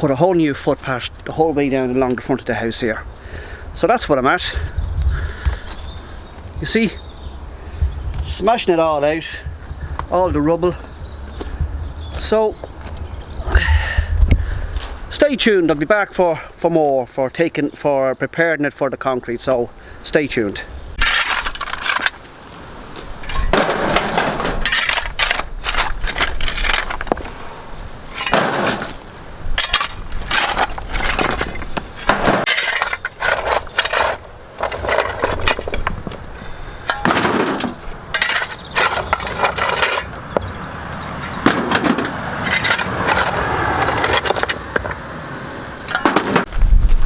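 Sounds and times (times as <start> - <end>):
impacts breaking concrete: 21.0 - 22.2, 23.2 - 27.3, 28.1 - 35.9, 36.8 - 40.2, 41.4 - 44.6, 45.9 - 46.5
concrete rubble crunching and clinking: 21.0 - 45.0, 45.8 - 47.0.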